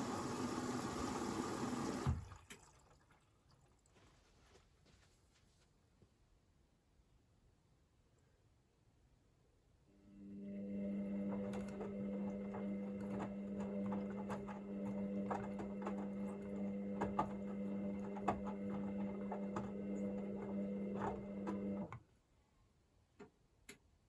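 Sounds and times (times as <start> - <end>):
washing machine humming: 0.0 - 2.9, 10.1 - 22.0
washing machine clicks and ticks: 11.5 - 21.8.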